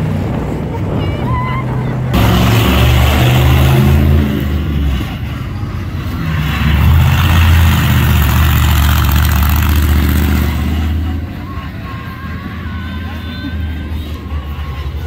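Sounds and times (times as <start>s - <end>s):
loud truck engine revving: 2.0s - 11.6s.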